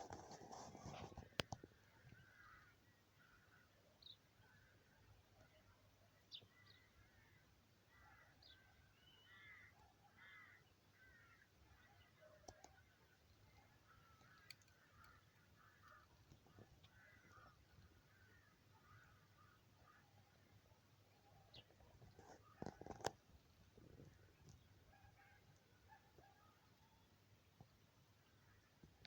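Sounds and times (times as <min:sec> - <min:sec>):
faint clicks: 0:00.0 - 0:02.5, 0:12.4 - 0:18.3
distant birds calling: 0:06.3 - 0:27.0.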